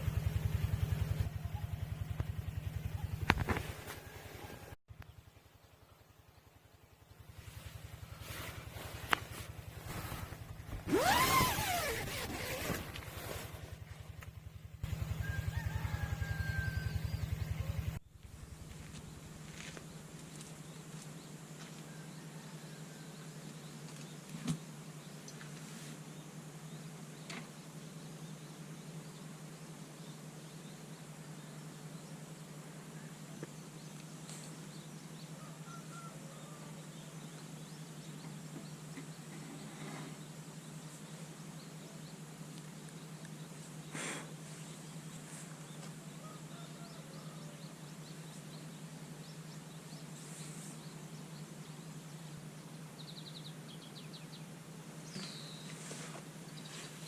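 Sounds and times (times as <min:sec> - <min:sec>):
engine running with low throb: 0:00.0 - 0:57.0
steady low hum: 0:00.0 - 0:57.0
faint bird chirps: 0:18.8 - 0:57.0.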